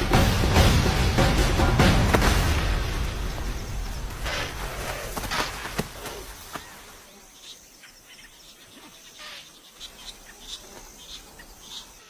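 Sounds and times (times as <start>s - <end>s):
music: 0.0s - 3.6s
insects buzzing: 0.0s - 12.0s.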